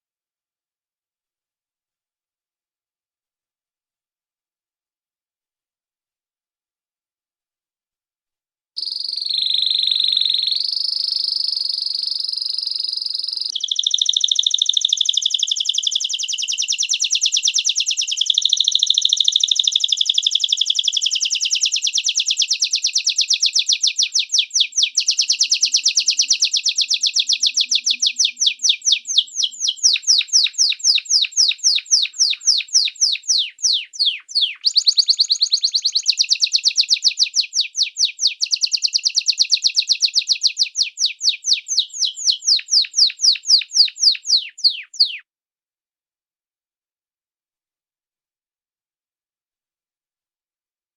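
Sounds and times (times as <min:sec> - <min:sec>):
songbird whistling and trilling: 0:08.8 - 0:45.2.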